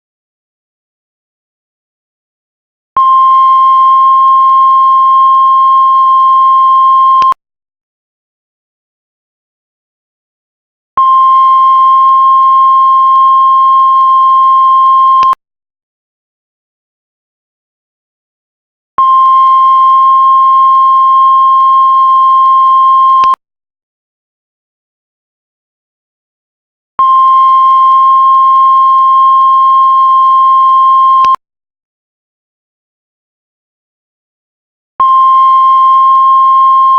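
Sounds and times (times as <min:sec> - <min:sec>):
heart monitor flatline beep: 0:03.0 - 0:07.4, 0:11.0 - 0:15.4, 0:19.0 - 0:23.4, 0:27.0 - 0:31.4, 0:35.0 - 0:36.9.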